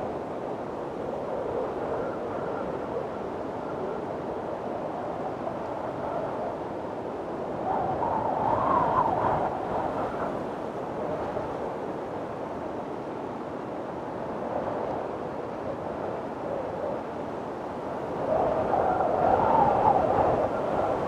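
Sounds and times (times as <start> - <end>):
strong wind howling: 0.0 - 21.0.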